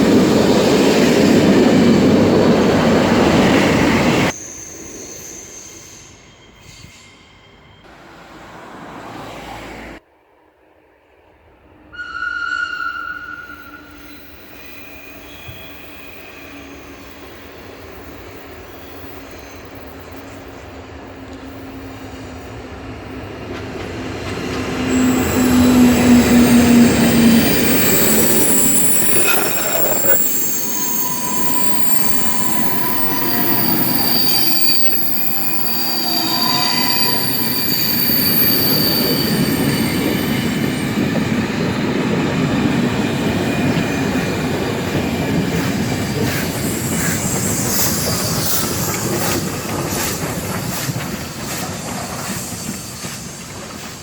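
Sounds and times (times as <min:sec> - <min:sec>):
train rumbling on rails: 0:00.0 - 0:10.0, 0:10.7 - 0:54.0
high-pitched wheel squeal: 0:12.0 - 0:17.0, 0:24.9 - 0:41.0, 0:46.2 - 0:49.4.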